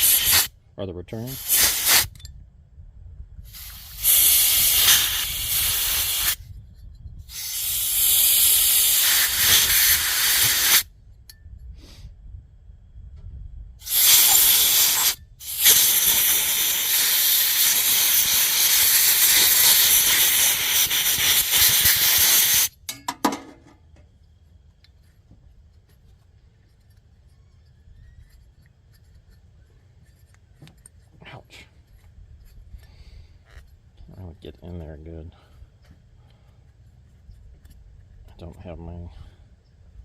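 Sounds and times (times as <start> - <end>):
compressed air hissing blasts: 0.0 - 0.5, 1.3 - 2.2, 3.4 - 6.5, 7.2 - 10.9, 11.7 - 12.1, 13.8 - 22.9.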